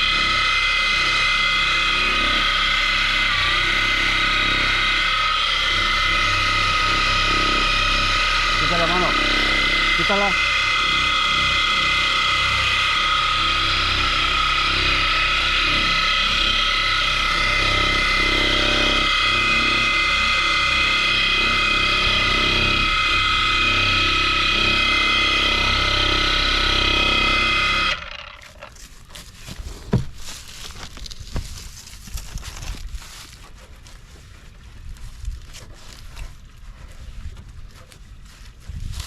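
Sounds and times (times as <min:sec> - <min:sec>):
power tool motor whine: 0:00.0 - 0:30.3.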